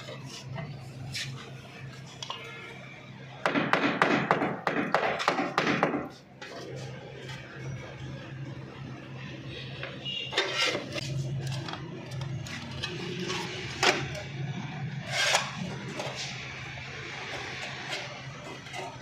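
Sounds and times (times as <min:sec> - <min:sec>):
tools scraping metal: 0:10.3 - 0:19.0.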